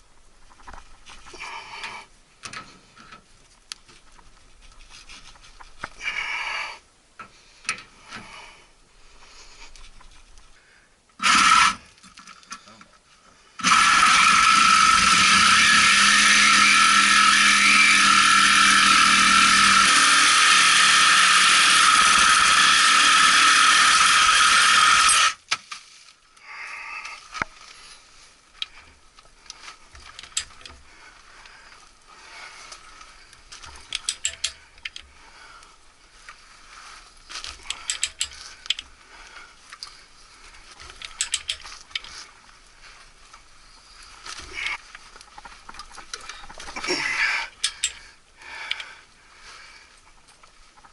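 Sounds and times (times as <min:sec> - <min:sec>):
loud steady machine noise: 0:13.6 - 0:25.4
hand tool clicks and ticks: 0:30.0 - 0:30.8, 0:33.6 - 0:35.1, 0:37.4 - 0:38.9, 0:40.8 - 0:42.1, 0:47.5 - 0:48.0, 0:48.6 - 0:48.9.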